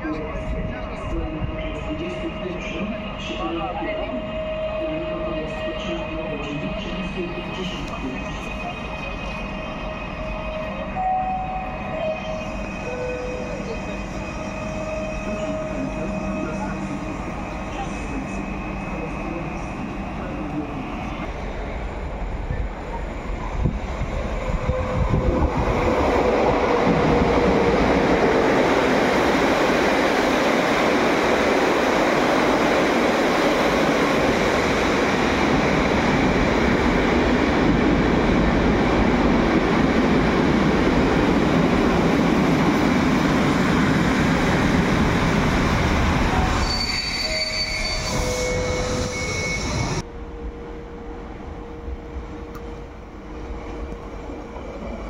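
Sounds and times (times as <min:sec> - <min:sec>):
train rolling rumble: 0:00.0 - 0:55.0
train brakes squealing: 0:07.6 - 0:21.2, 0:46.2 - 0:50.0.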